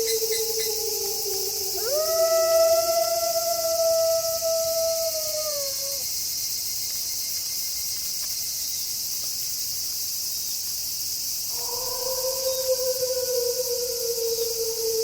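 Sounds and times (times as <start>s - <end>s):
wolf howling: 0.0s - 6.0s, 11.5s - 15.0s
crickets chirring: 0.0s - 15.0s.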